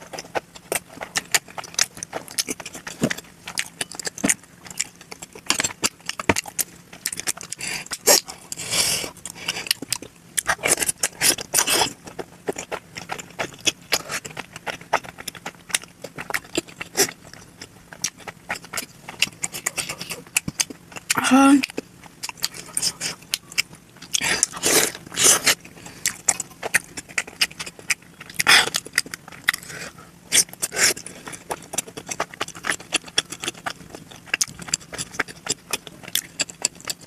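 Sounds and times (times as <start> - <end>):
slurping: 24.2 - 27.1
wet mouth clicks and smacks chewing: 30.3 - 37.0.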